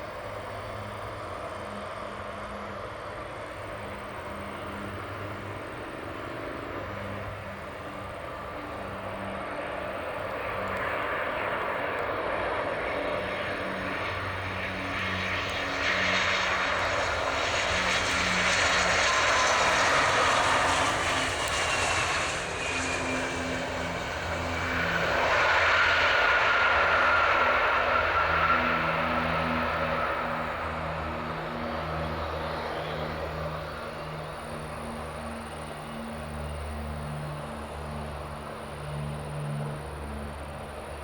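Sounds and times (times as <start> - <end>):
jet engines with whining tone: 0.0 - 41.0.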